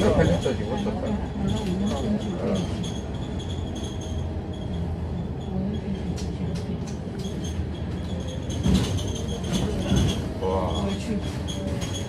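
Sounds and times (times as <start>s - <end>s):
bus body rattling: 0.0s - 12.0s
bus engine low rumble: 0.0s - 12.0s
clatter: 5.7s - 12.0s.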